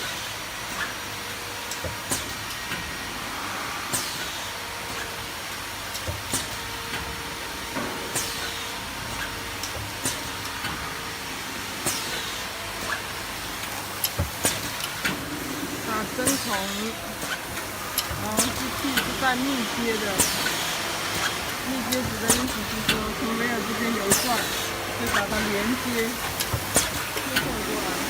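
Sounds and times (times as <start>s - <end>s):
machine mechanical hiss: 0.0s - 28.0s
machine clicks: 15.9s - 28.0s.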